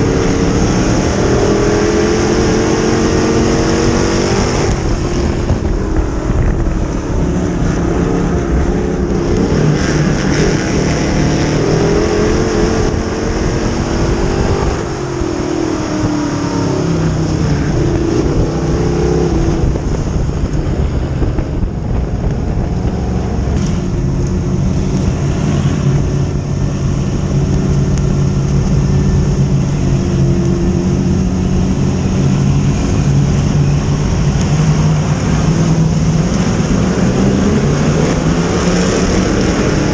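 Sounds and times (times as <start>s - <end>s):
race car engines revving: 0.0s - 39.9s.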